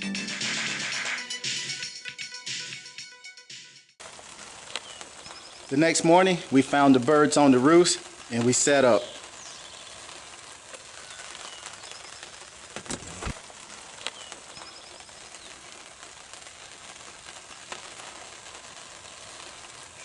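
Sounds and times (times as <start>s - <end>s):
steady hiss: 4.0s - 20.0s
small birds chirping: 4.5s - 19.8s.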